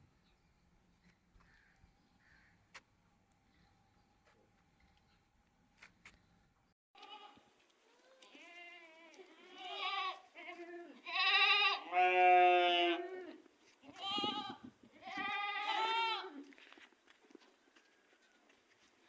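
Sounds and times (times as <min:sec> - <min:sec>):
goats bleating: 0:08.0 - 0:16.5.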